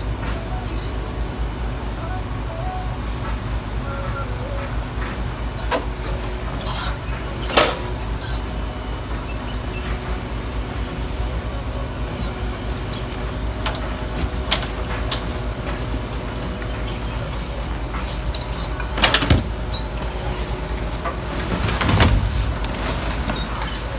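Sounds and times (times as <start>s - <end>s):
garbage truck engine running: 0.0s - 23.9s
sharp knocks and clanks: 17.9s - 20.2s.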